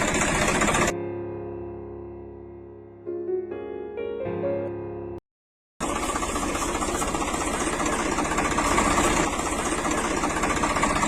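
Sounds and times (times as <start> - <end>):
small motor chugging: 0.0 - 0.9, 5.8 - 11.0.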